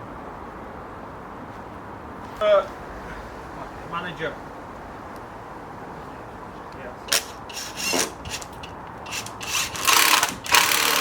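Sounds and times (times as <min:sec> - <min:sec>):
tool rasping on timber: 0:07.1 - 0:11.0.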